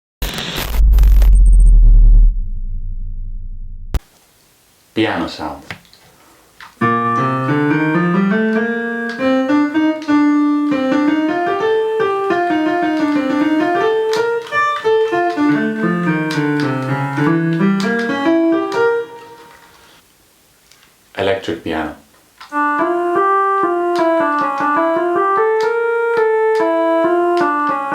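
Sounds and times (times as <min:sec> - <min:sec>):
sampled piano melody: 0:06.8 - 0:19.9, 0:22.5 - 0:27.9.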